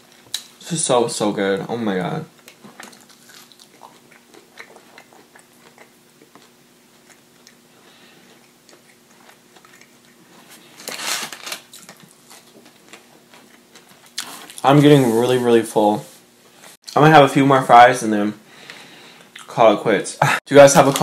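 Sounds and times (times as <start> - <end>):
chewing fried food: 2.3 - 10.9, 11.6 - 14.6
wrapper paper rustling: 10.8 - 13.0.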